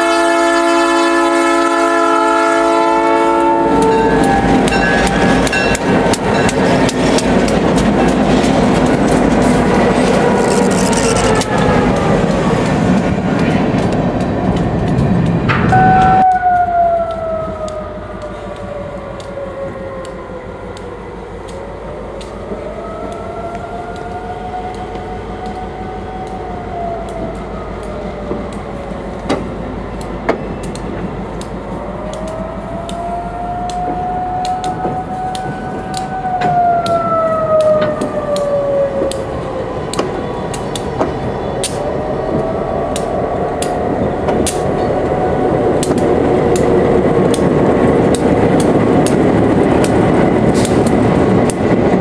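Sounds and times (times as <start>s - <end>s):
locomotive horn: 0.0s - 6.1s, 9.9s - 12.6s, 15.6s - 19.3s
diesel locomotive engine noise: 0.0s - 52.0s
steel wheels squealing: 10.2s - 11.5s
wheels clicking over rail: 37.6s - 52.0s.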